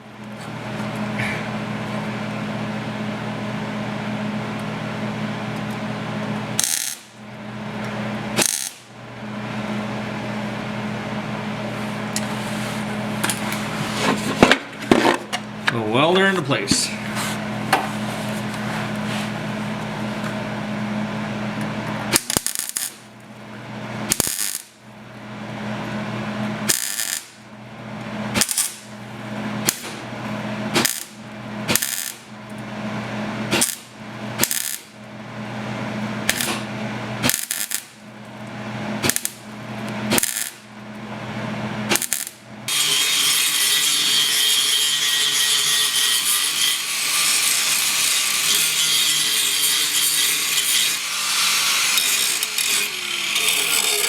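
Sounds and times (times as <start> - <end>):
welder bursts with sharp cracks: 6.6 - 7.2, 8.4 - 8.9, 22.1 - 23.0, 24.1 - 24.8, 26.7 - 27.4, 28.3 - 28.8, 29.6 - 30.0, 30.7 - 32.2, 33.5 - 34.9, 36.3 - 38.0, 39.0 - 39.4, 40.1 - 40.6, 41.9 - 42.4.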